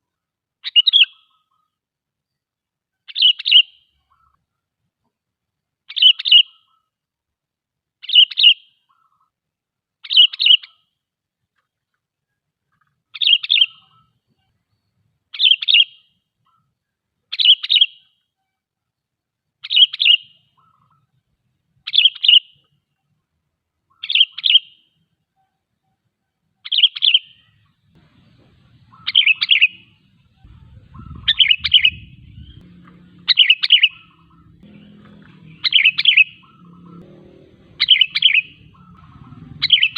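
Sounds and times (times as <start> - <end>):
faint low rumble: 27.5 - 39.9
bulbul bubbling call: 28.5 - 37.0, 37.7 - 39.9.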